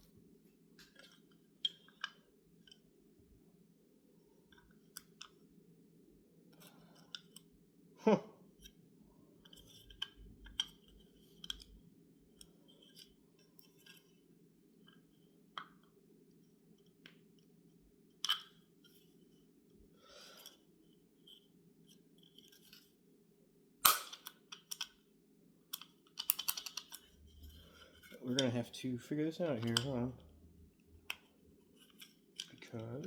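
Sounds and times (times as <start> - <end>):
faint steady hum: 0.0 - 33.0
clicks of metal parts and tools: 23.8 - 25.0, 25.7 - 28.6, 29.6 - 30.0.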